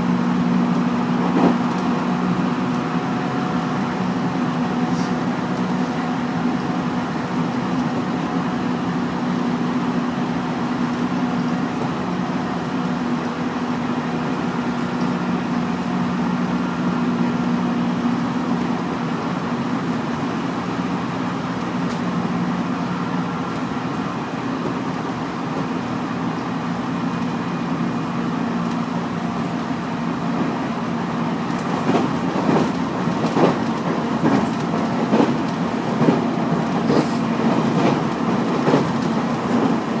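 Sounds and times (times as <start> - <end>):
wheels clacking over rail joints: 28.6 - 40.0.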